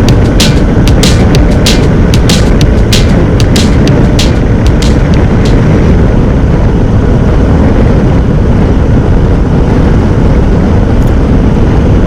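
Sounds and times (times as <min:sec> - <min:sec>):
wind rush and road noise: 0:00.0 - 0:12.0.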